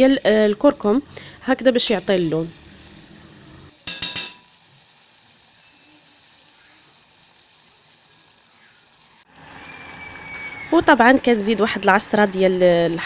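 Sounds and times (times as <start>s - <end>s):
food sizzling in oil: 0.0s - 13.0s
metal spoon clinking on pot: 3.8s - 4.5s.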